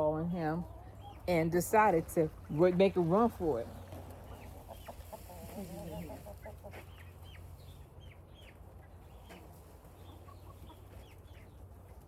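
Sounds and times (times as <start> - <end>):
chicks peeping: 0.4 - 12.0
chicken clucking: 3.7 - 12.0.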